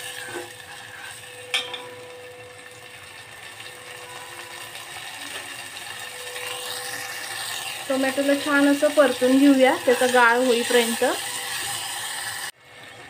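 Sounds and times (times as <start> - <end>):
tomatoes sizzling in hot oil: 0.0 - 13.0
spoon clinking against pot: 1.5 - 2.0.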